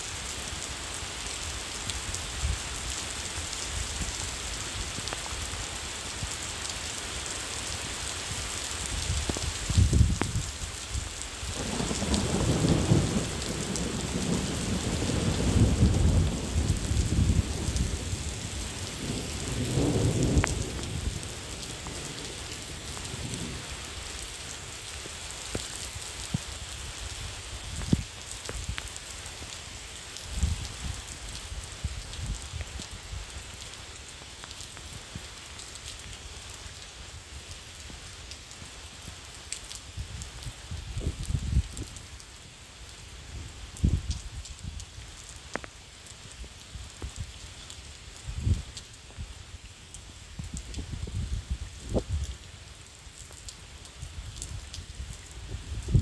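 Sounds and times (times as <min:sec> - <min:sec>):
steady rain falling: 0:00.0 - 0:56.0
low rumble of thunder: 0:11.5 - 0:24.3.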